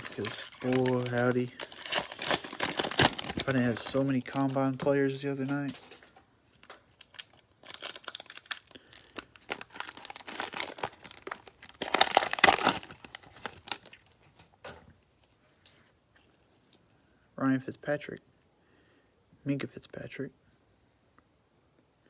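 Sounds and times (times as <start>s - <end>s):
cellophane wrapper crinkling and tearing: 0.0s - 14.4s.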